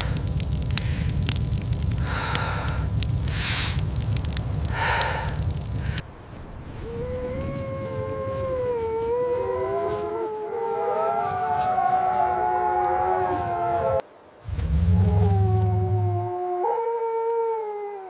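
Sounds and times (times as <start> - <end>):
wolves howling: 6.9 - 14.0, 14.9 - 18.0.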